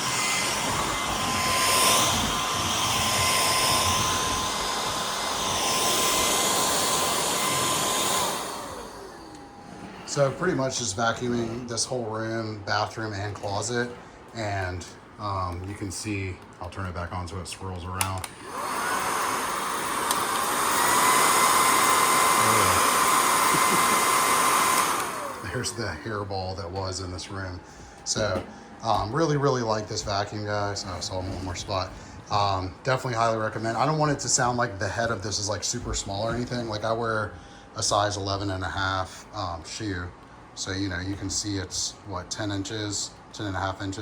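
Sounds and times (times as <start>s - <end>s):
stick vacuum motor whine: 0.0s - 12.0s, 17.9s - 37.3s.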